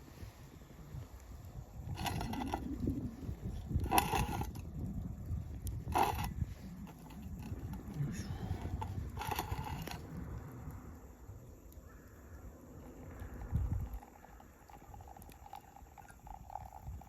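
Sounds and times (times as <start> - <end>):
low steady rumble: 0.0 - 11.6
crow cawing: 11.8 - 12.4.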